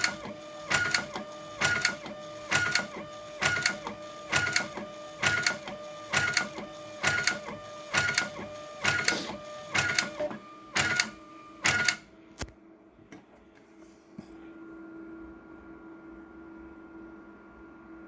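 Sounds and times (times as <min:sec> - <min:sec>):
label printer printing: 0:00.0 - 0:12.1
single click: 0:11.7 - 0:12.6.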